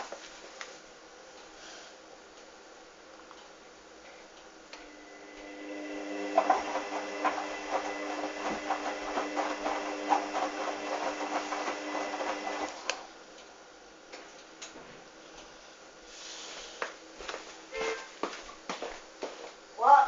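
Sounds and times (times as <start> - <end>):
washing machine motor humming: 4.8 - 13.2.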